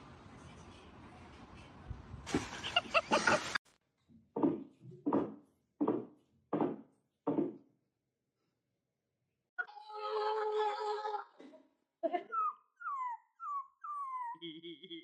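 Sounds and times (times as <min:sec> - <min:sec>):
pet animal calling: 0:12.4 - 0:14.5.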